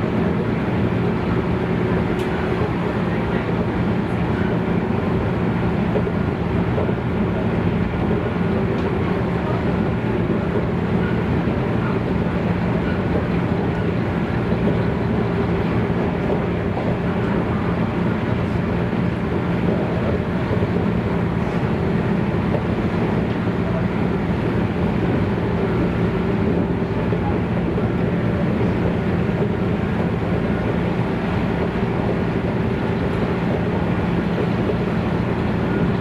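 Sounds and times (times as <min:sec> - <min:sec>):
wheels rumbling on rail: 0:00.0 - 0:36.0.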